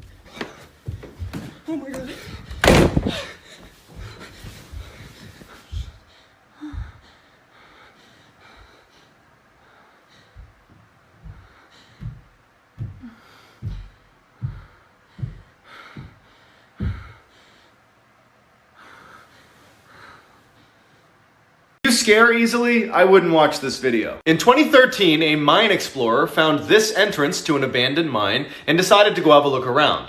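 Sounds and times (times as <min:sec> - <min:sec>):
faint breathing: 0:00.0 - 0:18.0, 0:18.7 - 0:21.4
dull low thumps: 0:00.9 - 0:07.2, 0:09.6 - 0:17.3.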